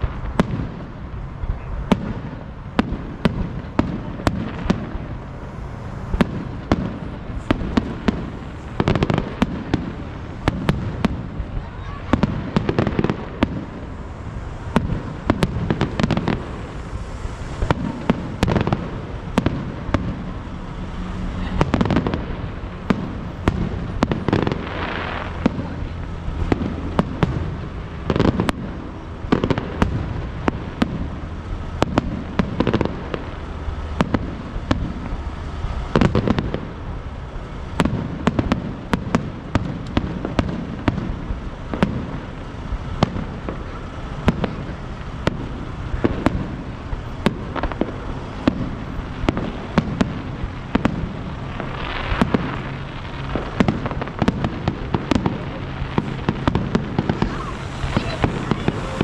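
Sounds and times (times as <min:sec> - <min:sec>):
low rumble: 0:00.0 - 0:31.4
crackling firework shells: 0:00.0 - 0:59.0
fireworks bangs: 0:00.0 - 0:59.0.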